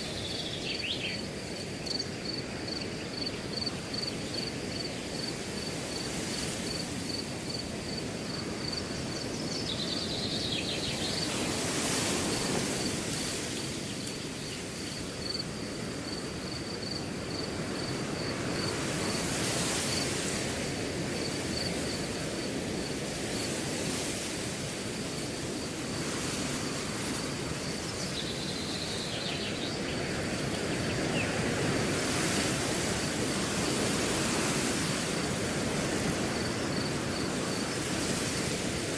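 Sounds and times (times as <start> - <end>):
insect chirring: 0.0 - 6.1, 12.3 - 18.7
cricket chirping: 0.0 - 38.9
wind rushing through grass: 0.0 - 38.9.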